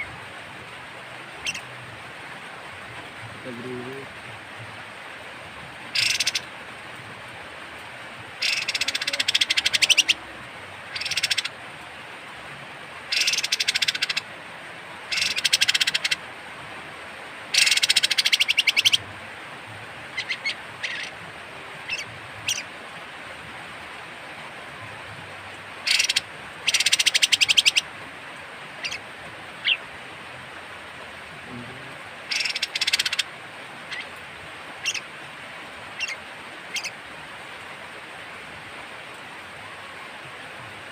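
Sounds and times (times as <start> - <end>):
steady hiss: 0.0 - 40.9
bird rasping rattle calls: 5.9 - 6.4, 8.4 - 10.2, 10.9 - 11.5, 13.1 - 14.2, 15.1 - 16.2, 17.5 - 19.0, 20.2 - 21.1, 25.8 - 27.8, 28.8 - 29.0, 32.3 - 33.3, 34.8 - 35.0, 36.0 - 36.9.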